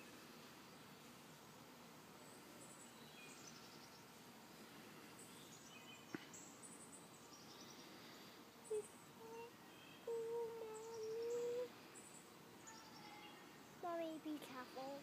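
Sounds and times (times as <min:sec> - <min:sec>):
faint songbird chirps and trills: 0:00.0 - 0:15.0.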